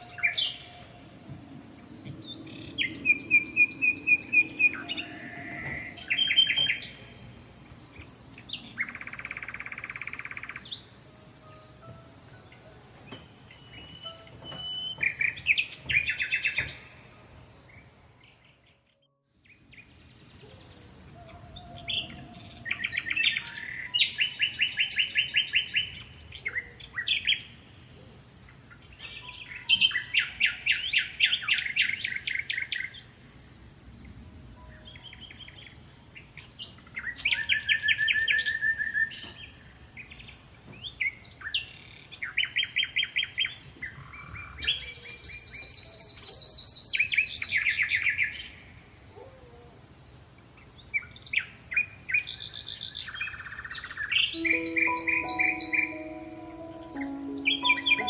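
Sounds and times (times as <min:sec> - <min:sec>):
songbirds trilling: 0:00.0 - 0:11.0, 0:12.0 - 0:17.1, 0:19.5 - 0:27.6
high bird chirps: 0:53.3 - 0:58.0.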